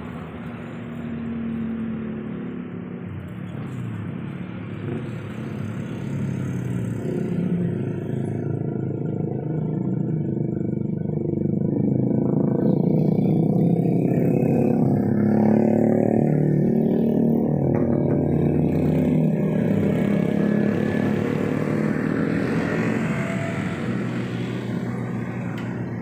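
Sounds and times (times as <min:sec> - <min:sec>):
heavy vehicle engine passing: 0:15.2 - 0:26.0.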